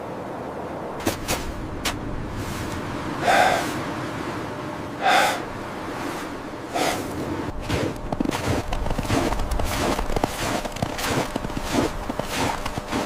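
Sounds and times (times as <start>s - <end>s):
sharp loud breaths or snorts: 3.2s - 3.8s, 5.0s - 5.5s, 6.7s - 7.8s.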